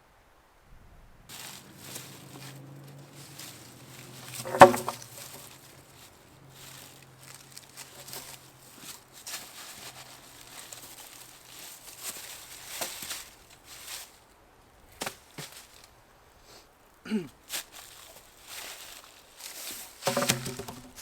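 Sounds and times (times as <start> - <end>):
rustling and crinkling: 1.3 - 21.0
sharp knocks: 4.4 - 5.2.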